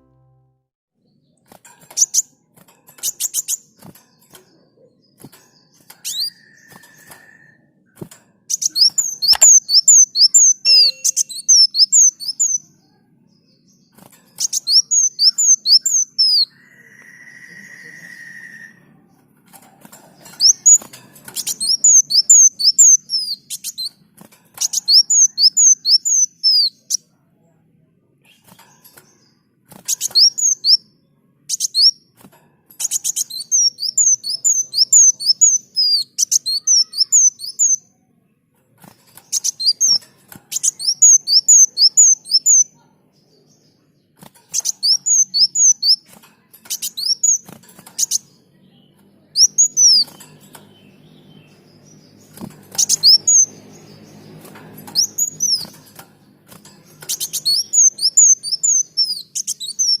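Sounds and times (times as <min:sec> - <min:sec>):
sunbird chirping: 0:01.0 - 0:19.1, 0:20.1 - 0:24.0, 0:24.6 - 0:27.0, 0:39.0 - 1:00.0.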